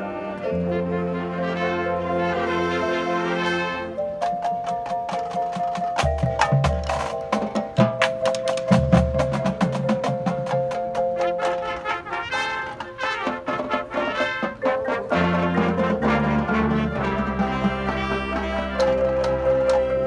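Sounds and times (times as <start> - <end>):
brass sustained chords: 0.0 - 4.1, 11.2 - 20.0
low brass: 0.0 - 4.2, 11.0 - 20.0
percussion ticks: 4.0 - 20.0.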